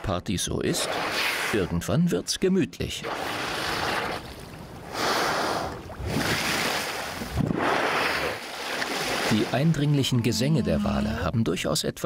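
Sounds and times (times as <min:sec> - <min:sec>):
sea water washing and lapping: 0:00.7 - 0:01.7, 0:03.0 - 0:10.7.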